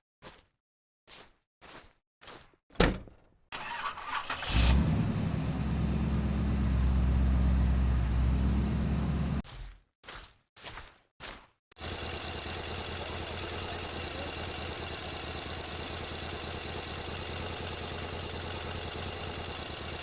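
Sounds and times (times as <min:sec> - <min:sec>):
engine running: 0:03.6 - 0:09.4, 0:11.8 - 0:20.0.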